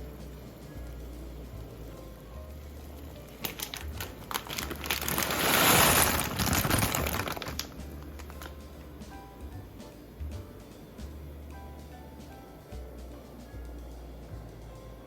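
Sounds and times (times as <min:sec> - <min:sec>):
plastic packaging crinkling: 0:03.2 - 0:08.6.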